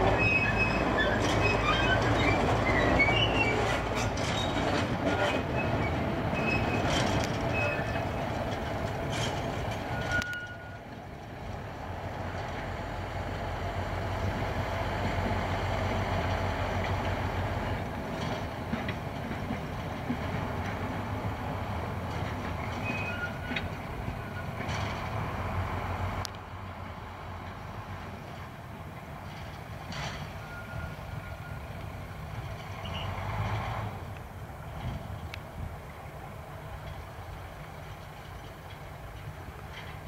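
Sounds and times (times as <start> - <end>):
train engine hum: 0.0 - 40.0
wheel squeaks and clicks: 0.1 - 10.8, 22.5 - 25.0.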